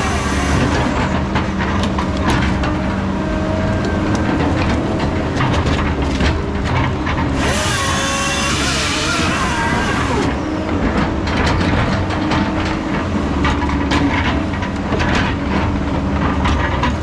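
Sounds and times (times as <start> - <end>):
heavy diesel machine running: 0.0 - 17.0.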